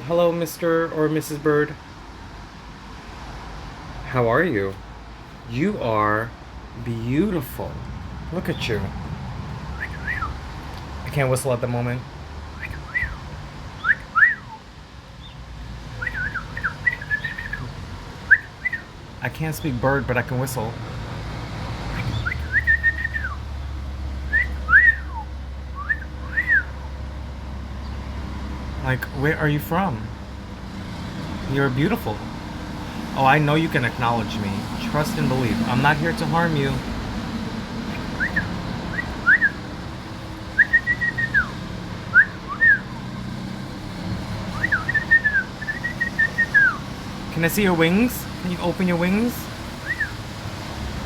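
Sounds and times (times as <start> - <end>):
person whistling: 13.8 - 14.6, 22.1 - 23.4, 24.3 - 25.2, 25.8 - 26.7, 37.9 - 39.6, 40.6 - 41.5, 42.1 - 43.0, 44.6 - 46.8.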